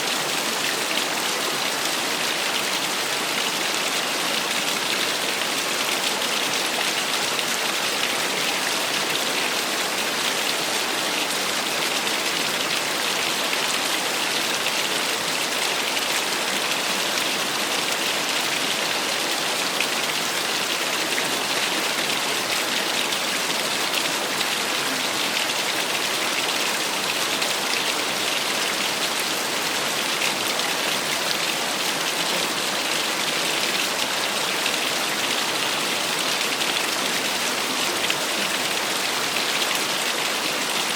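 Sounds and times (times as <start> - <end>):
small waterfall splashing: 0.0 - 40.9.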